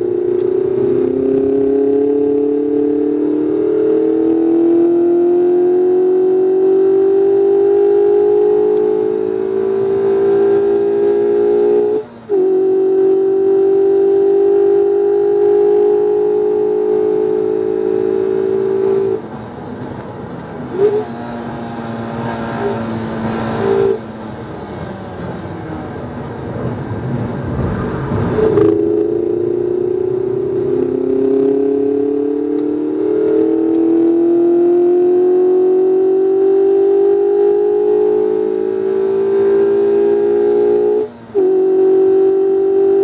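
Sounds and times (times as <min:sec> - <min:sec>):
car engine accelerating: 0:00.0 - 0:43.0
engine rev blips: 0:27.4 - 0:43.0.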